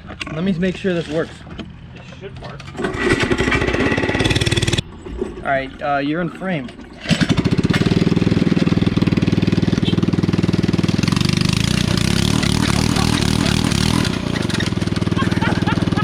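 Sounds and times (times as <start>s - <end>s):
mini-bike engine running: 7.1s - 16.0s.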